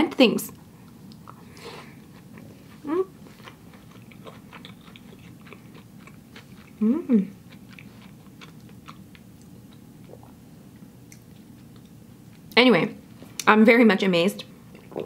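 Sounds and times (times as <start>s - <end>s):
person chewing: 0.8s - 12.5s
person humming mm: 2.8s - 3.2s, 6.8s - 7.4s.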